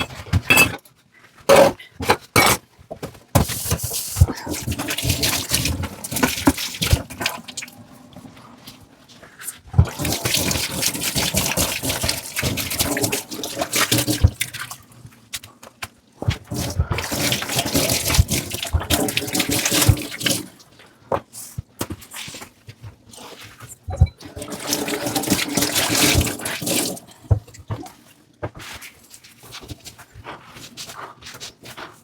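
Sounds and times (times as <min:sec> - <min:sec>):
dishes clinking: 0:00.0 - 0:00.9, 0:01.5 - 0:02.6, 0:23.9 - 0:24.3
tap water running over dishes: 0:03.4 - 0:30.6.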